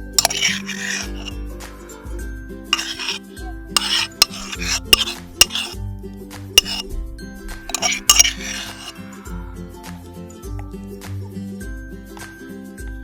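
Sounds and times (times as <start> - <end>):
utensil scraping and clinking: 0.0 - 1.4, 2.8 - 5.8, 6.6 - 6.8, 7.7 - 9.0.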